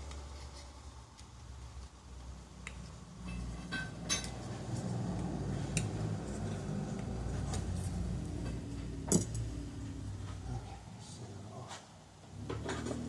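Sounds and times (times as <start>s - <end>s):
steady low hum: 0.0s - 13.0s
metal parts clicking and tapping: 9.1s - 9.5s.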